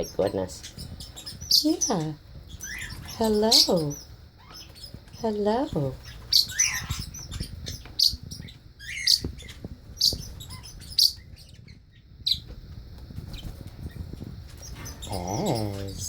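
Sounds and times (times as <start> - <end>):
bird sharp chirps: 6.0 - 12.5.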